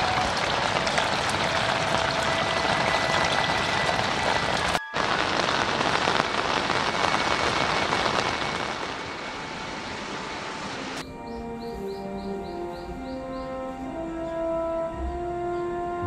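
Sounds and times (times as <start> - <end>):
heavy rain on foliage: 0.0 - 11.0.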